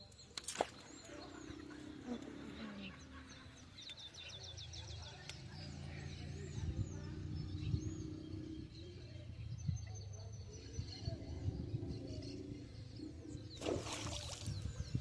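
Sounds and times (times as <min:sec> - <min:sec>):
small birds chirping: 0:00.0 - 0:15.0
steady low hum: 0:04.8 - 0:15.0.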